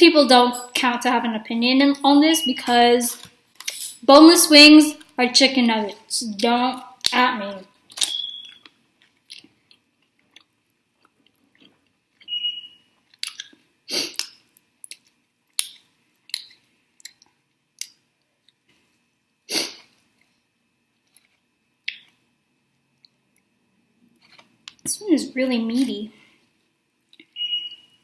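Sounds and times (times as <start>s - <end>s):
chewing and wet mouth sounds: 7.9s - 12.4s, 13.0s - 18.7s, 21.0s - 22.2s, 22.9s - 23.6s.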